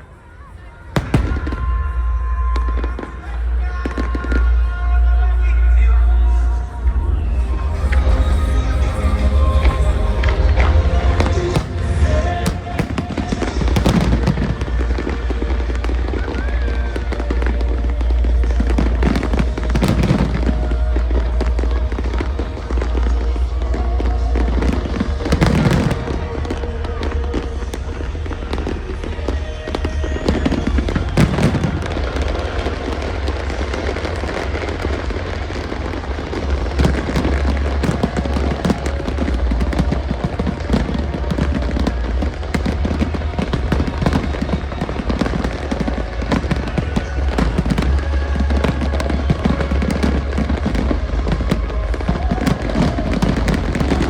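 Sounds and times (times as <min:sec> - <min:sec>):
big fireworks bangs: 0:00.0 - 0:54.0
fireworks crackling and popping: 0:00.0 - 0:54.0
music: 0:00.0 - 0:54.0
deep fireworks booms: 0:00.8 - 0:04.7, 0:06.8 - 0:54.0.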